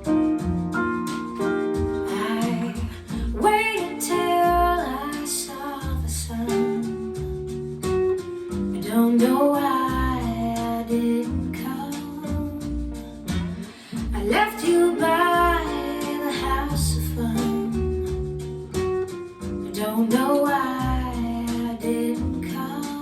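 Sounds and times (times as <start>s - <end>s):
acoustic guitar: 0.0s - 23.0s
person singing: 2.1s - 7.0s, 14.1s - 17.8s, 19.8s - 23.0s.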